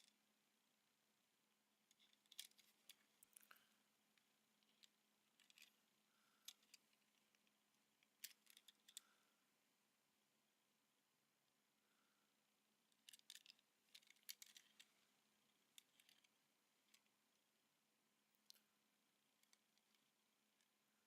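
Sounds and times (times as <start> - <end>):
toy car clicks: 1.9 - 3.5, 8.2 - 9.0, 12.9 - 14.8, 15.7 - 16.3.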